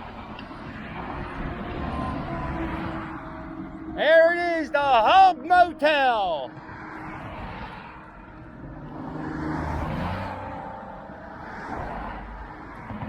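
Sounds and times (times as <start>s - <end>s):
vehicle passing close by: 6.4s - 13.0s.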